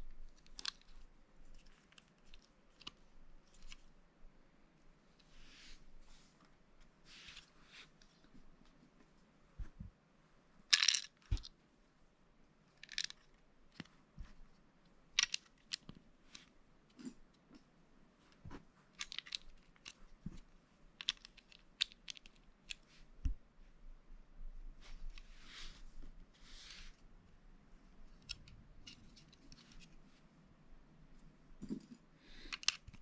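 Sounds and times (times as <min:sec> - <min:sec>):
loose plastic pieces rattling: 0:10.7 - 0:11.5
plastic pieces clicking together: 0:10.7 - 0:11.5, 0:12.8 - 0:13.3, 0:15.2 - 0:15.9, 0:32.5 - 0:33.0.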